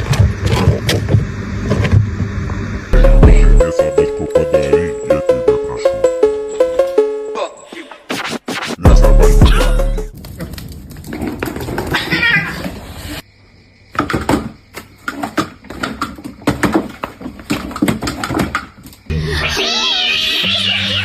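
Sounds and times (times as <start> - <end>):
sharp knocks and clattering: 13.9 - 19.0.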